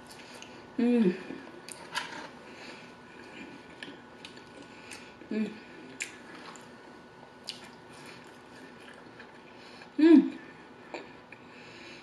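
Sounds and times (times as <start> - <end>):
person chewing: 3.2 - 6.8, 7.4 - 9.9.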